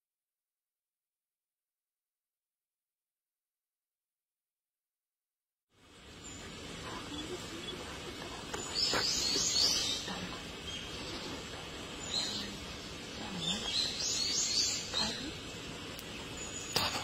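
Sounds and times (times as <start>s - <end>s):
steady outdoor hiss: 5.7s - 17.0s
birds chirping: 5.9s - 17.0s.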